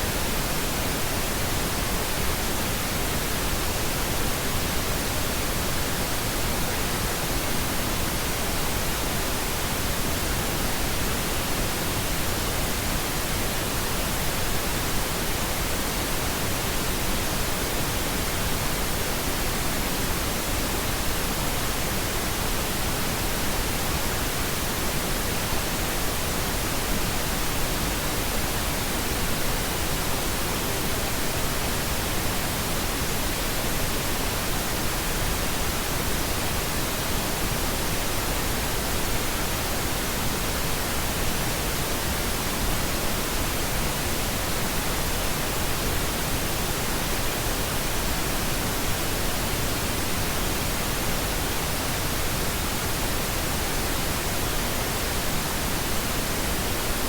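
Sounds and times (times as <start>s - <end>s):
pink noise hiss: 0.0s - 57.0s.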